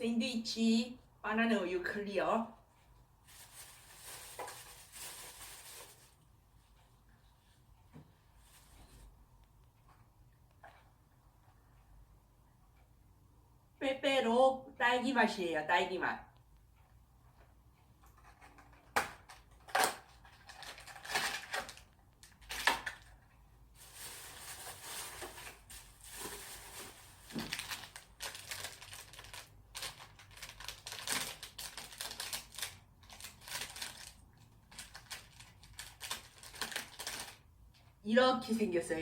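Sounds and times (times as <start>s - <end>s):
plastic wrapper crinkling: 3.2s - 6.2s, 19.7s - 23.2s, 23.8s - 37.4s.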